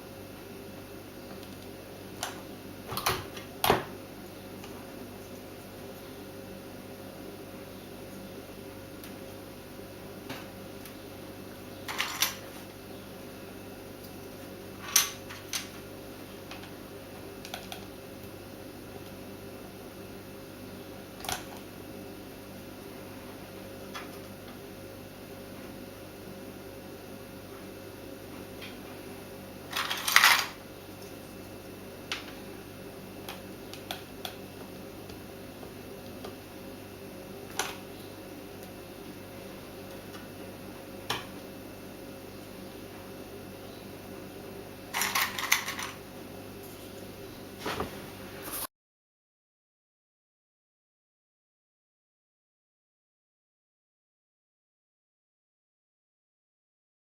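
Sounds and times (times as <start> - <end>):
steady low hum: 0.0 - 48.7.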